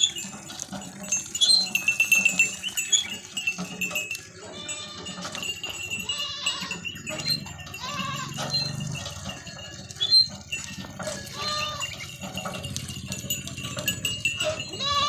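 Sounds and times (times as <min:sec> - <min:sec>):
goats bleating: 0:01.4 - 0:15.0.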